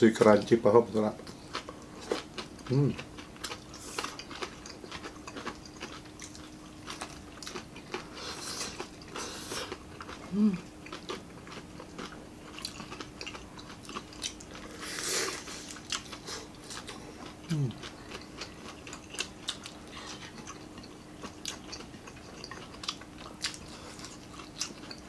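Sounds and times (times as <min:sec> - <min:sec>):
person humming: 0:02.7 - 0:03.0, 0:10.3 - 0:10.7, 0:17.5 - 0:17.8.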